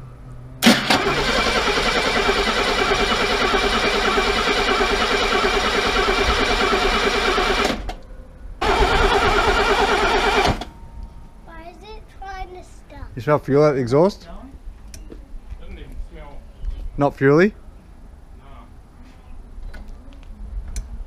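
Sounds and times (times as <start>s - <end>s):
engine cranking on starter: 0.6s - 8.0s, 8.6s - 10.7s.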